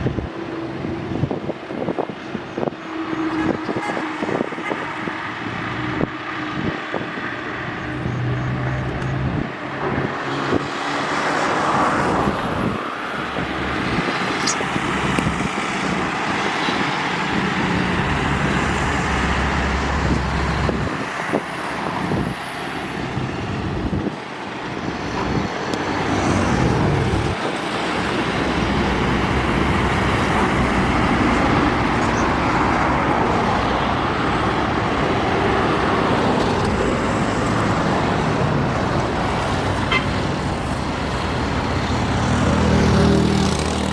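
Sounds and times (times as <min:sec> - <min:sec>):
highway traffic passing: 0:00.0 - 0:43.9.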